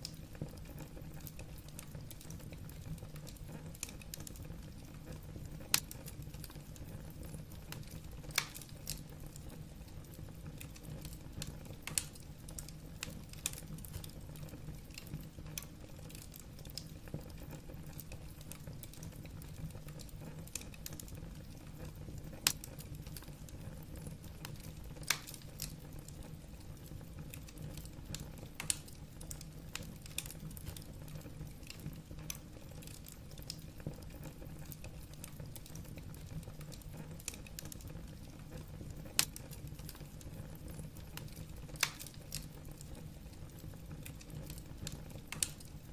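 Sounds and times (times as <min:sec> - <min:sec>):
fire low rumble: 0:00.0 - 0:45.9
logs crackling and popping: 0:00.0 - 0:45.9.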